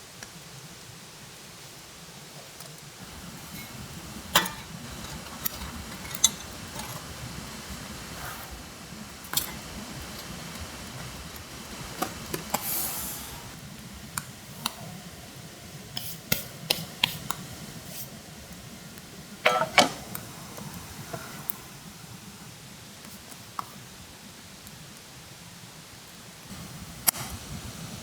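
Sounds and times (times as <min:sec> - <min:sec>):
hard objects clicking and clinking: 0:03.0 - 0:07.8, 0:09.2 - 0:12.6.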